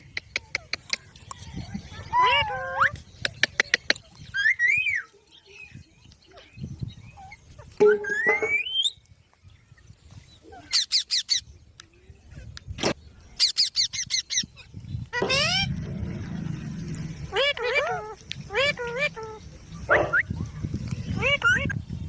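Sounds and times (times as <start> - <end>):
parrot whistling: 7.9 - 8.9
parrot screeching: 15.2 - 15.8, 17.3 - 20.2.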